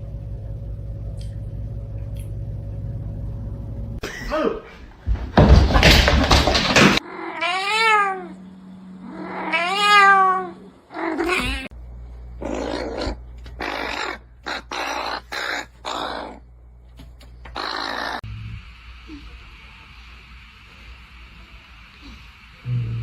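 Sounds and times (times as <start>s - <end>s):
cat meowing: 7.0s - 8.4s, 9.1s - 11.7s.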